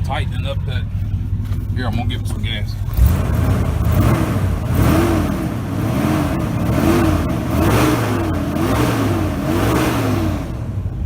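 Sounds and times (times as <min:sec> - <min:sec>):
car engine revving: 0:00.0 - 0:11.0
engine fan: 0:00.0 - 0:11.0.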